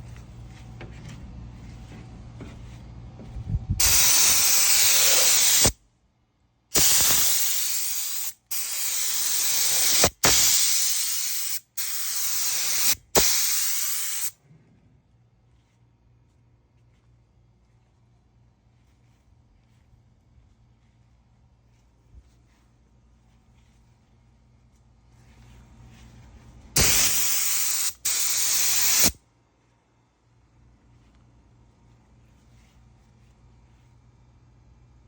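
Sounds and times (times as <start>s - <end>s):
low steady hum: 0.0s - 3.9s, 14.4s - 26.8s, 29.2s - 35.0s
spray gun hissing: 3.8s - 5.8s, 6.8s - 14.4s, 26.8s - 29.2s.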